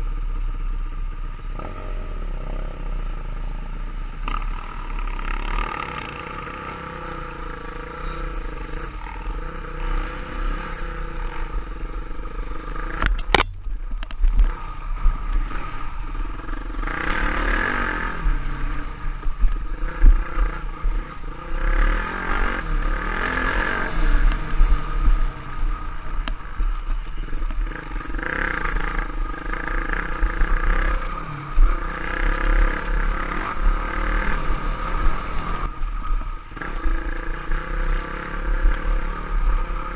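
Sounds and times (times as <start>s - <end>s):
motorcycle engine revving: 0.0s - 39.9s
sharp click: 13.0s - 14.5s.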